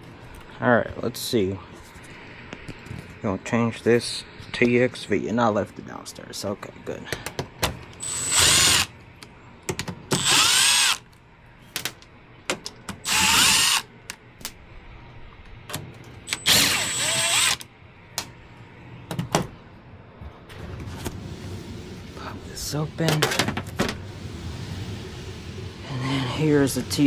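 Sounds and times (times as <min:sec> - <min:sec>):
power drill whining: 0:08.0 - 0:08.9, 0:10.2 - 0:11.1, 0:13.0 - 0:13.9, 0:16.3 - 0:17.6.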